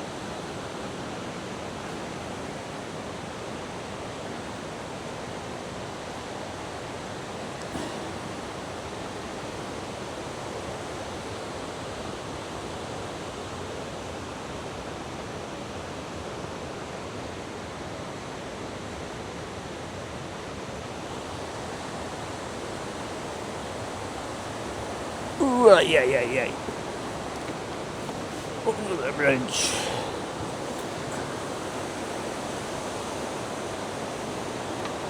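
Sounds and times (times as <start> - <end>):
river rushing: 25.0 - 35.0.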